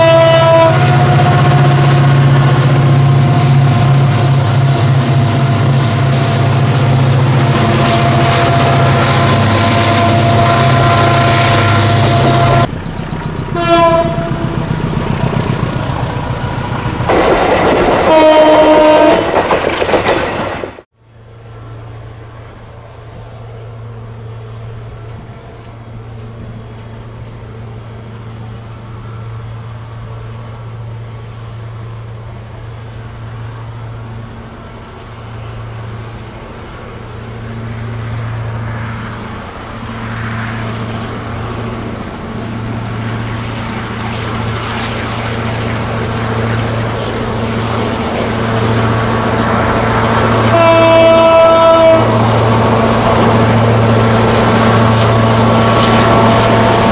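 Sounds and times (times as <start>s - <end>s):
locomotive horn blasts: 0.0s - 12.7s, 13.5s - 14.7s, 18.0s - 19.3s, 49.8s - 56.9s
locomotive engine droning: 0.0s - 56.9s.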